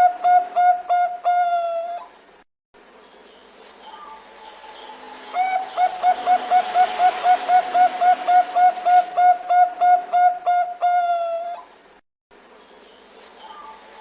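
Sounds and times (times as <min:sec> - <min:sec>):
dove cooing: 0:00.0 - 0:02.1, 0:03.9 - 0:11.7.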